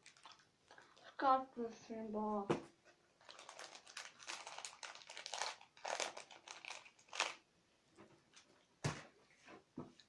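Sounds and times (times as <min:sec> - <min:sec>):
crinkling by hand: 0:00.0 - 0:01.2, 0:02.8 - 0:07.5.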